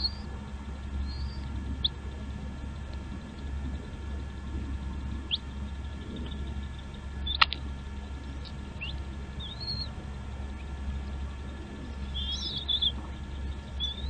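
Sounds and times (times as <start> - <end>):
small bird chirping: 0.0 - 0.3, 0.9 - 2.0, 2.7 - 14.0
sharp click: 7.3 - 7.6.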